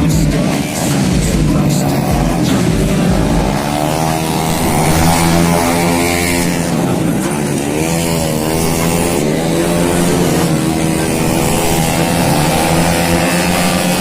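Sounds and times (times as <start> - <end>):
racing scooters passing by: 0.0 - 14.0.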